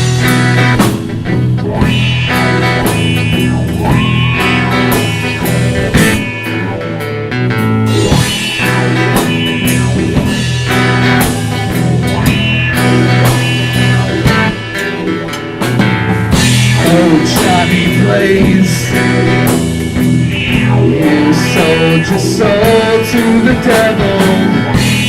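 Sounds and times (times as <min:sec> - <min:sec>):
drum kit: 0:00.0 - 0:25.0
electric guitar: 0:00.0 - 0:25.0
rock band playing: 0:00.0 - 0:25.0.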